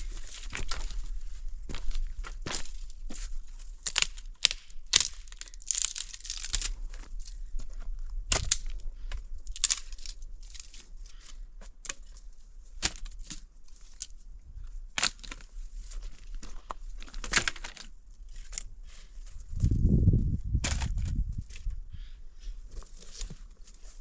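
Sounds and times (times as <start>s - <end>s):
rustling and crinkling: 0.0s - 21.8s, 22.6s - 24.0s.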